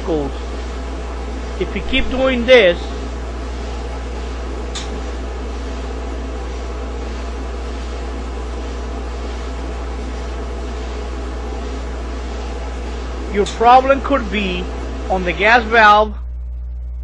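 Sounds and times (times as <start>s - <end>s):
clothes dryer running: 0.0s - 17.0s.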